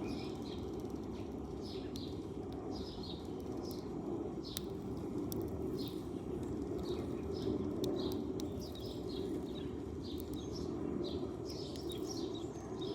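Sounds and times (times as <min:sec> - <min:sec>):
sparrows chirping: 0:06.8 - 0:12.9.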